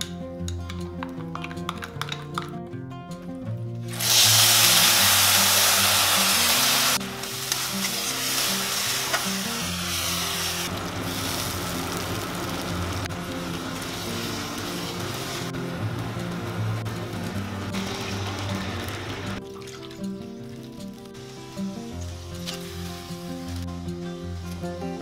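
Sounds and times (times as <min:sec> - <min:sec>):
soft background music: 0:00.0 - 0:25.0
food sizzling in hot oil: 0:03.9 - 0:15.6.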